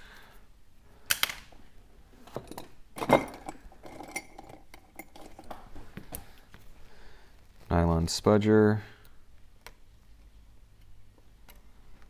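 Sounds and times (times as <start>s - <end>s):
small tools clinking on hard surface: 2.3s - 5.6s.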